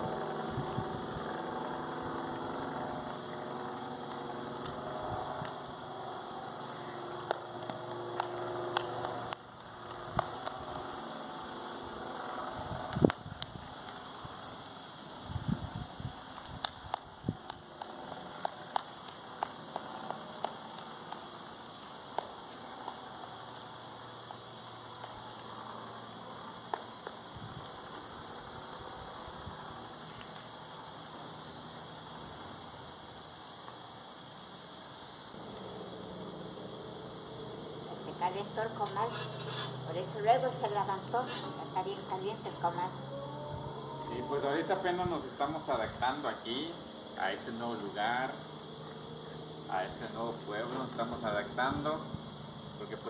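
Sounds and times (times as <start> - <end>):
grilling hiss: 0.0 - 53.0
campfire pops and crackles: 0.2 - 28.9, 32.5 - 35.5.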